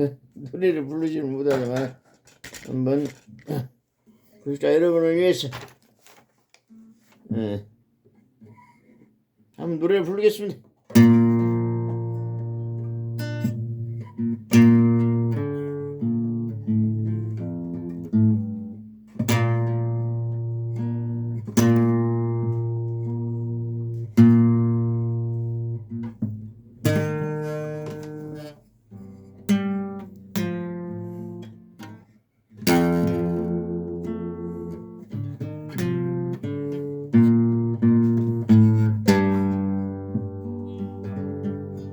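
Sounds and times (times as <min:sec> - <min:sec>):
acoustic guitar strumming chords: 0:10.9 - 0:32.0, 0:32.6 - 0:41.9.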